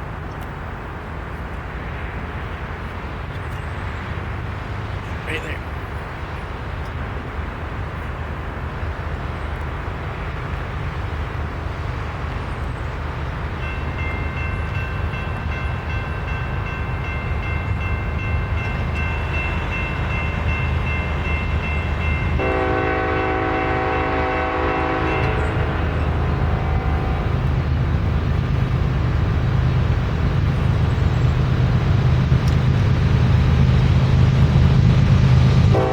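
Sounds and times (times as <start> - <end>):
train rumbling: 0.0 - 35.9
train air horn blast: 22.4 - 27.5.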